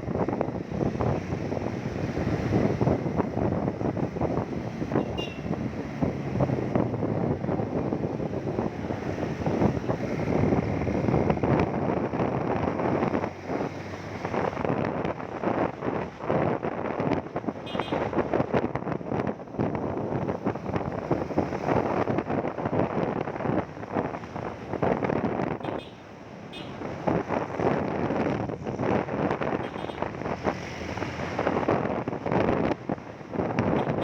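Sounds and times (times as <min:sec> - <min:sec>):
wind buffeting microphone: 0:00.0 - 0:25.7, 0:26.8 - 0:34.0
road noise: 0:00.0 - 0:34.0.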